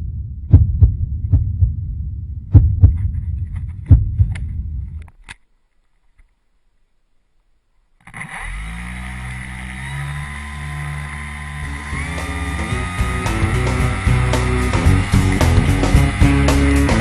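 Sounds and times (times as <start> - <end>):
low thumps: 0.0 - 5.2, 11.5 - 17.0
model plane engine running: 8.1 - 17.0.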